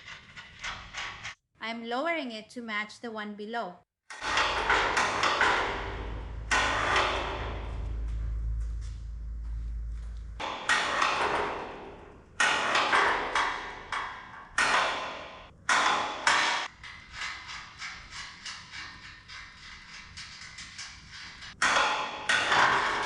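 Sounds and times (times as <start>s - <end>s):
low hum: 4.2s - 10.4s.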